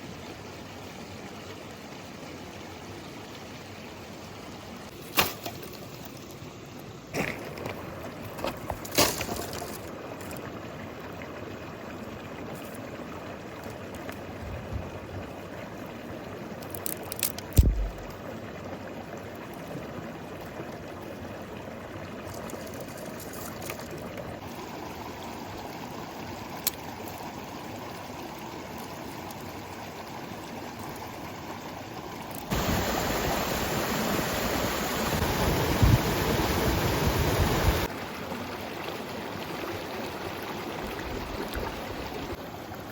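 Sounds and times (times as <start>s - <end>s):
stream water rushing: 0.0s - 42.9s
knocks and splashes: 4.9s - 6.2s, 7.1s - 10.4s, 16.7s - 18.3s.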